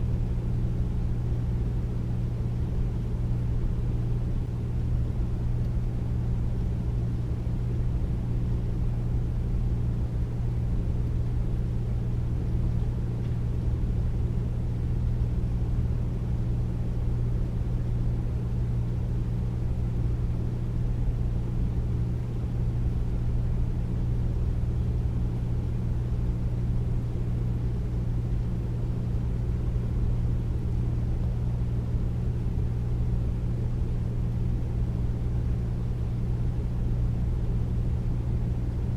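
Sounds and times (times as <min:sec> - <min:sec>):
air conditioner humming: 0:00.0 - 0:38.9.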